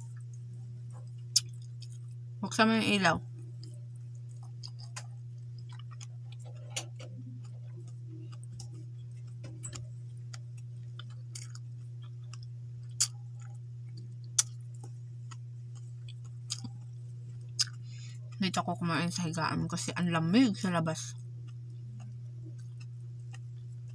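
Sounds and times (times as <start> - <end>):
steady low hum: 0.0 - 23.9
chewing and lip smacks: 1.0 - 2.2, 3.6 - 17.8, 21.1 - 23.9.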